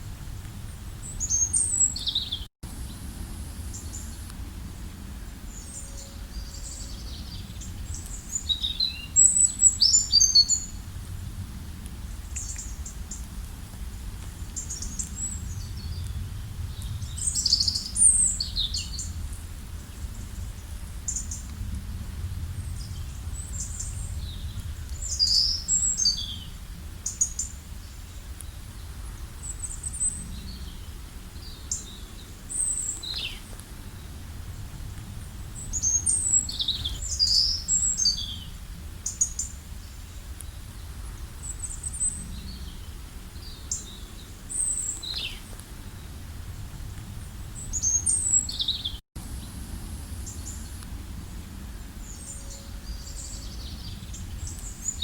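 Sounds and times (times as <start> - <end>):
songbirds chirping: 0.3 - 11.3, 11.9 - 21.8, 22.4 - 55.0
low rumble: 10.6 - 25.2.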